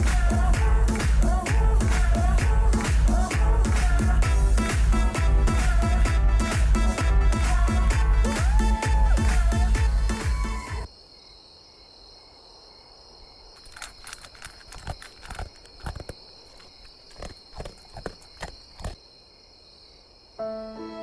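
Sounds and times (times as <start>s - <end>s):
music: 0.0s - 10.9s, 20.4s - 21.0s.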